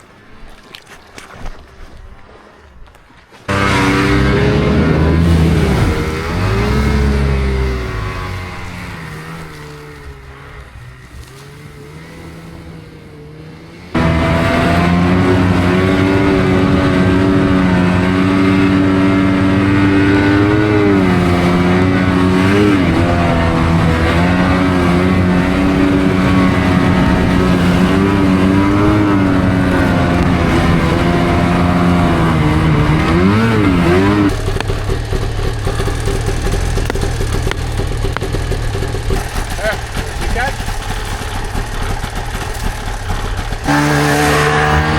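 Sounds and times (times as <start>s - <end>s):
snowmobile engine running: 3.5s - 44.9s.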